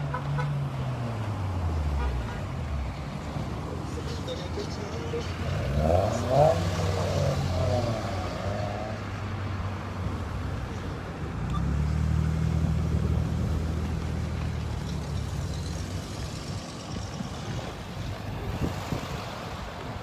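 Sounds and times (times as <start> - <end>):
traffic noise: 0.0 - 20.0
vehicle engine rumbling: 0.0 - 20.0.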